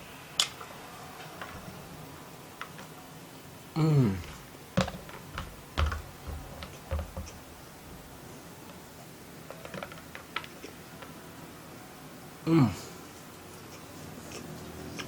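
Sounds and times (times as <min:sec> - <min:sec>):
chewing sounds: 0:13.0 - 0:15.0.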